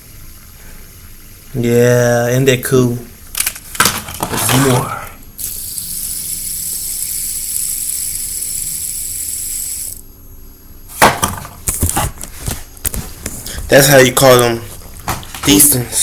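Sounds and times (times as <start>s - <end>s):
fidget spinner whirring: 5.4s - 10.1s.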